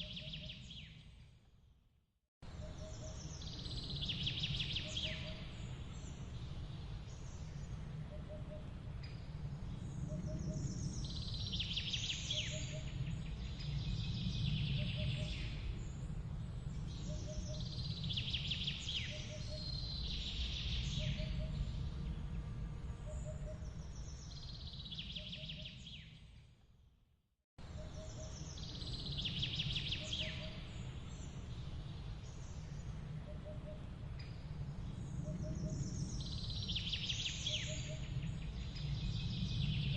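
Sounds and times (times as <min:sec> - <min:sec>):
steady low rumble: 0:37.9 - 0:39.9.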